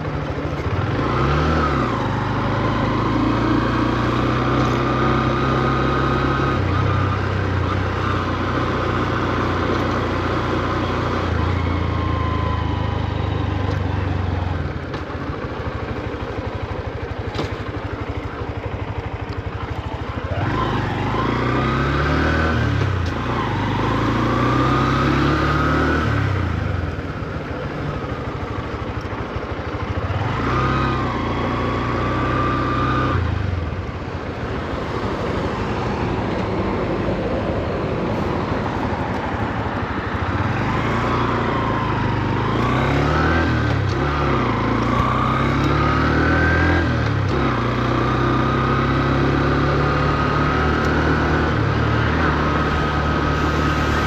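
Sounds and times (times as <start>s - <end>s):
motorcycle engine shifting gears: 0.0s - 54.0s.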